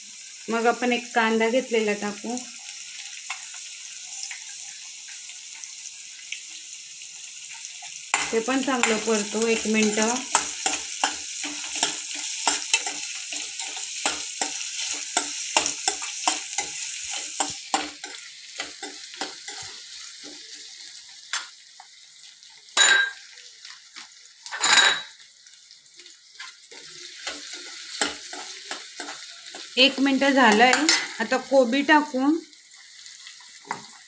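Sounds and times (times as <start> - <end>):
vegetables sizzling in oil: 0.0 - 34.0
metal spatula clicking against pan: 9.6 - 16.8.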